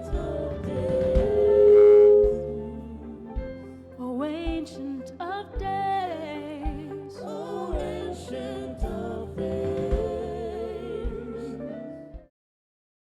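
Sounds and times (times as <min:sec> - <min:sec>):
band playing: 0:00.0 - 0:03.8
low drum beat: 0:00.0 - 0:03.8, 0:04.4 - 0:04.8, 0:07.6 - 0:11.5
person singing with vibrato: 0:00.0 - 0:12.1.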